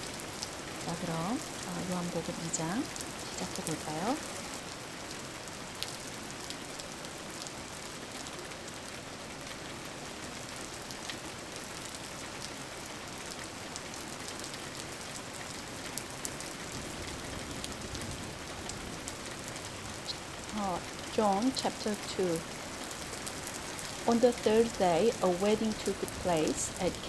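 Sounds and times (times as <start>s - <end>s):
steady rain falling: 0.0s - 27.0s
drips and pattering drops: 19.2s - 27.0s.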